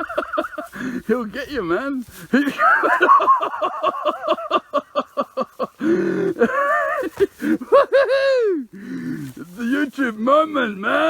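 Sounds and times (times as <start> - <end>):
kookaburra laughing: 0.0 - 0.8, 2.4 - 8.4.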